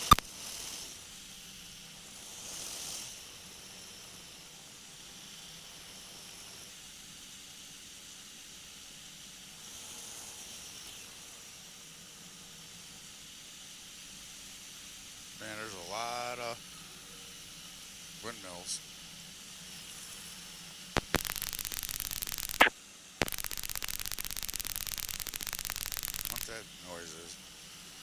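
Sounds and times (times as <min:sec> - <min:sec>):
faint engine drone: 0:21.0 - 0:26.6.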